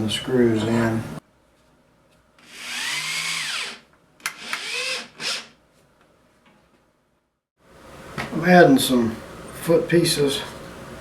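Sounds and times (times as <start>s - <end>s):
power drill driving screws: 2.4s - 5.6s.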